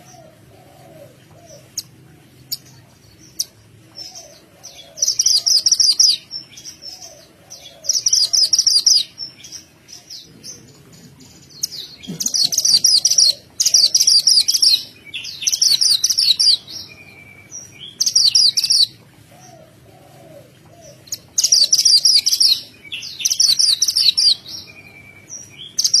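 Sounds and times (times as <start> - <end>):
songbird chirping rapidly: 20.9 - 26.0.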